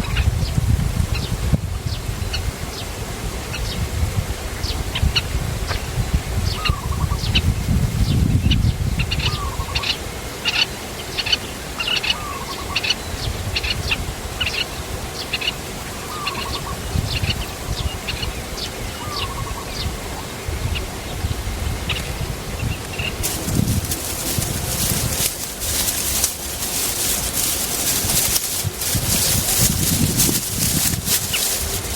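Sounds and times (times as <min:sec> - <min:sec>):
small birds chirping: 0:22.9 - 0:31.9.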